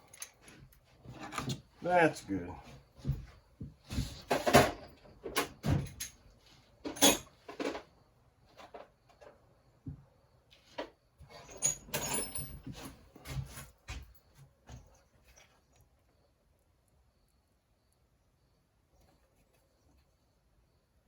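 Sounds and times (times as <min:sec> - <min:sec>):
tools and parts clicking and clattering: 0:00.0 - 0:01.7, 0:04.2 - 0:08.0, 0:10.7 - 0:14.2.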